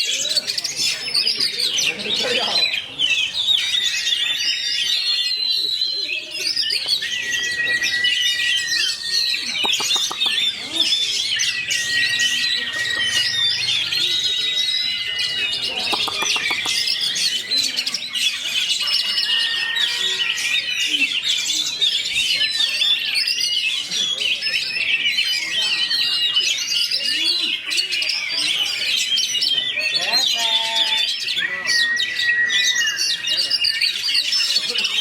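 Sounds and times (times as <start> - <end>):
bird singing whistles and trills: 0.0 - 30.3, 31.0 - 35.0
bird harsh rattling phrases: 9.3 - 14.2, 15.0 - 17.2.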